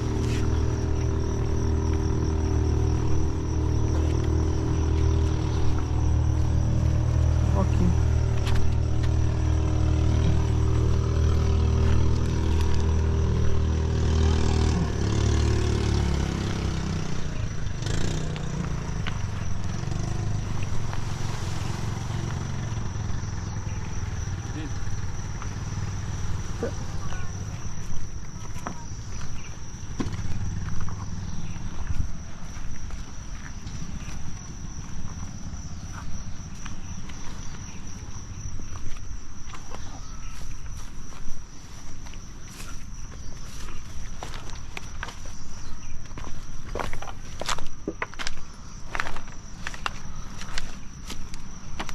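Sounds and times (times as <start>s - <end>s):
motor engine running: 0.0s - 40.9s
insect trill: 0.0s - 51.9s.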